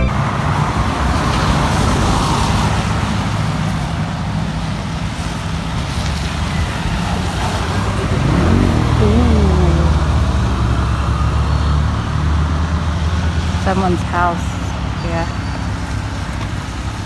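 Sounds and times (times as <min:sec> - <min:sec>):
road traffic noise: 0:00.0 - 0:17.0
vehicle engine running: 0:04.4 - 0:16.2.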